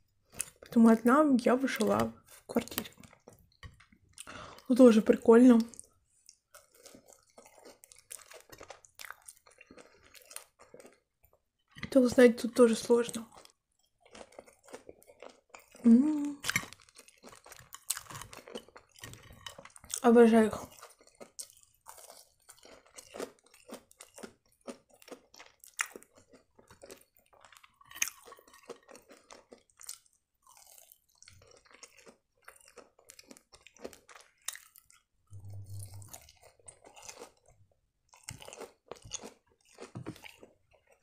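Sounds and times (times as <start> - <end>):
pastry crust crunching: 13.4 - 20.0.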